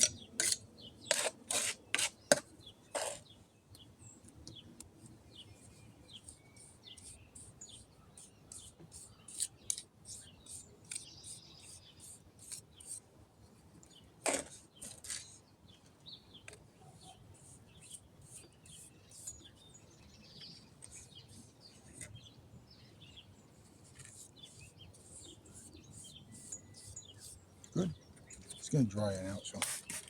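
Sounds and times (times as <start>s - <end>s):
trowel scraping wet concrete: 0.0s - 3.2s
birds chirping: 0.0s - 13.0s, 13.8s - 30.0s.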